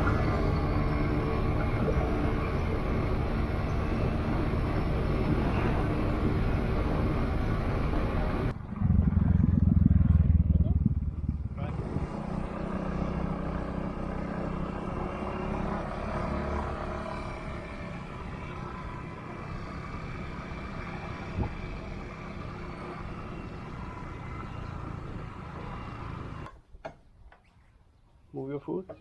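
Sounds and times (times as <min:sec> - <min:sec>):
vehicle engine: 0:00.0 - 0:26.5
wind and road noise: 0:00.0 - 0:27.3.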